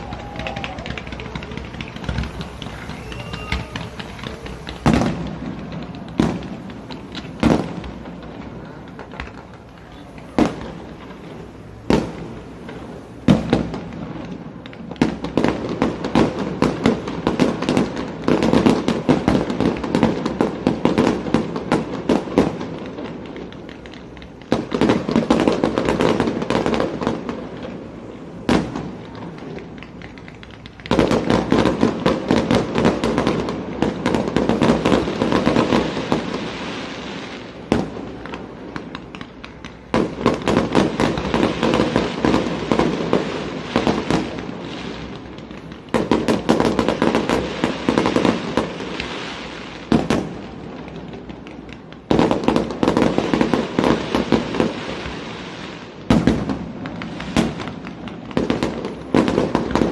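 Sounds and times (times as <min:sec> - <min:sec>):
firework shells bursting: 0:00.0 - 0:20.0
fireworks crackling: 0:00.0 - 0:59.9.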